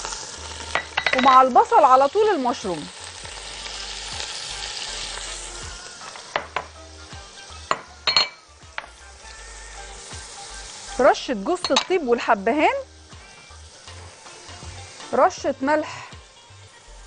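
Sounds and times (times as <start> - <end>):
onions sizzling in butter: 0.0 - 17.0.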